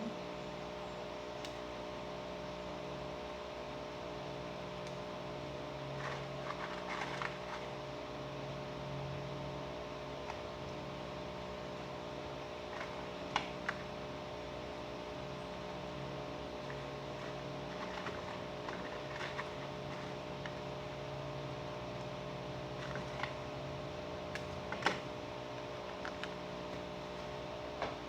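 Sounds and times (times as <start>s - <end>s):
electric fan humming: 0.0s - 28.0s.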